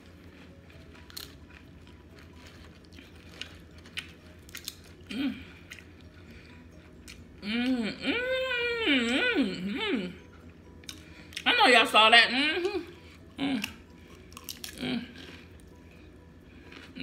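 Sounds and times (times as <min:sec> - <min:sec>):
chips crunching and clicking: 0:00.0 - 0:06.2, 0:13.4 - 0:15.8, 0:16.5 - 0:17.0
quiet chewing: 0:00.0 - 0:07.4, 0:12.6 - 0:17.0.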